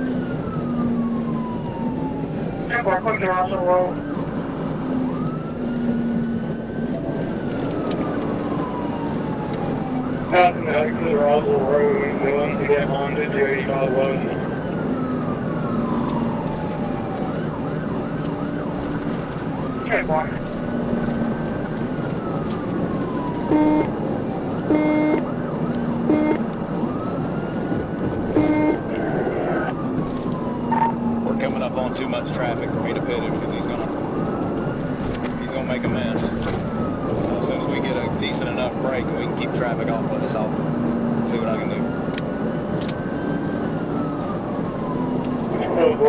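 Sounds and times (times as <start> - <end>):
police siren wailing: 0.0 - 46.0
road and engine noise: 0.0 - 46.0
car horn blasts: 23.5 - 23.9, 24.7 - 25.2, 26.1 - 26.4, 28.4 - 28.8.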